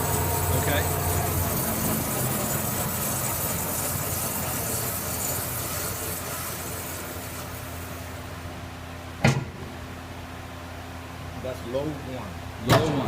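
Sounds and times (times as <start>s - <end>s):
band saw humming: 0.0s - 8.3s.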